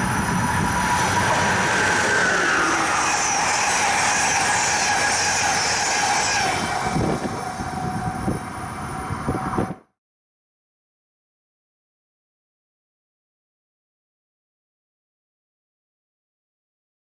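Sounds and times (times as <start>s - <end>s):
faint high squealing: 0.0s - 9.6s
train wheels rushing on rail: 0.0s - 9.8s.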